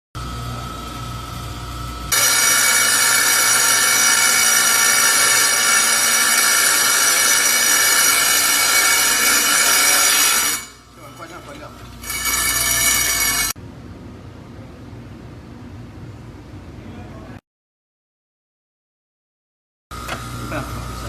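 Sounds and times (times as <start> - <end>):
saw blade grinding tile: 2.1 - 13.6
tile saw motor whining: 2.1 - 13.6.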